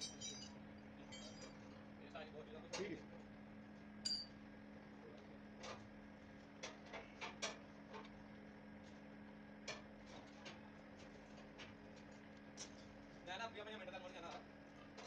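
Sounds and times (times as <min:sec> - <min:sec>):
steady low hum: 0:00.0 - 0:02.6, 0:03.2 - 0:05.2.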